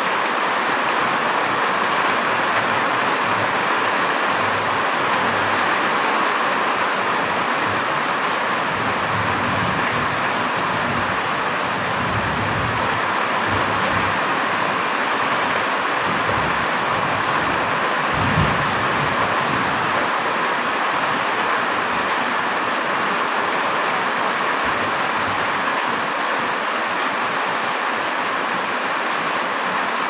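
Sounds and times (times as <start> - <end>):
heavy rain: 0.0 - 30.0.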